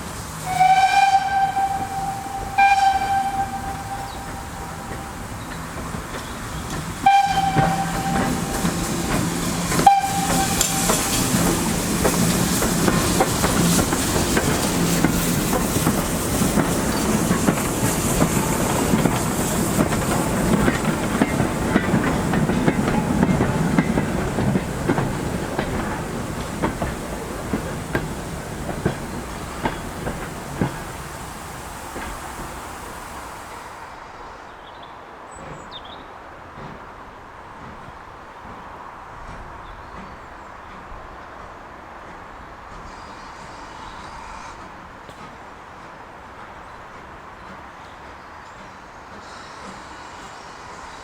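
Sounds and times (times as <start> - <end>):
steam locomotive whistle: 0.4 - 5.5, 7.0 - 16.0
wheels clattering over rail joints: 3.1 - 33.6.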